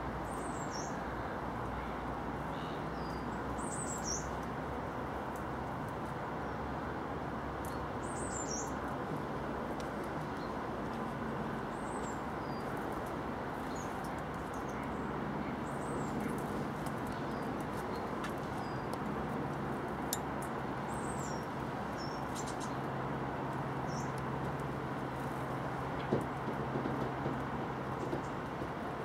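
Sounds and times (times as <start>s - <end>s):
outdoor background hum: 0.0s - 29.0s
small birds chirping: 0.2s - 1.3s, 2.5s - 4.5s, 7.6s - 8.8s, 11.7s - 22.9s, 23.7s - 24.6s.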